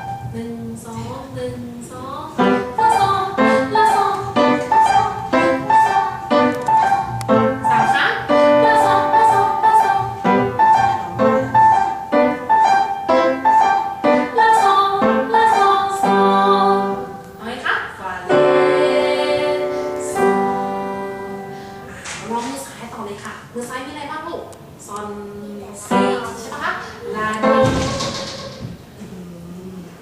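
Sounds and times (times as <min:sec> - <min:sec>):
piano playing simple tune: 0:00.0 - 0:17.4, 0:18.2 - 0:22.0, 0:25.9 - 0:26.6, 0:27.3 - 0:28.8.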